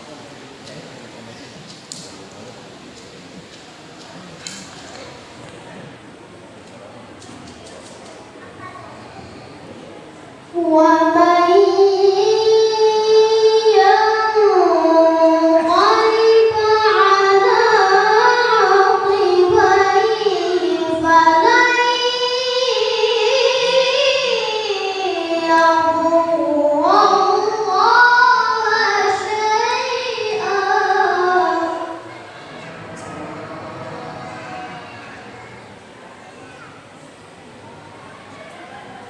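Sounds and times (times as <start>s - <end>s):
person chanting melodically: 10.5s - 36.0s.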